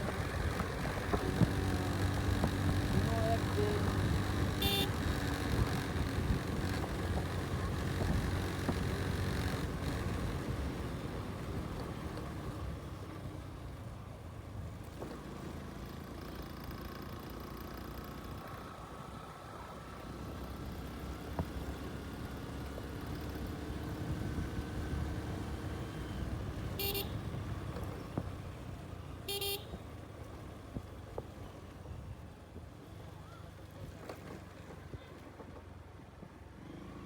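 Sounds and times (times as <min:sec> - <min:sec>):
motorcycle engine running: 0:00.0 - 0:13.9, 0:20.3 - 0:31.4
road and wind noise: 0:00.0 - 0:37.0
horn toot: 0:04.6 - 0:05.0, 0:26.8 - 0:27.2, 0:29.3 - 0:29.7.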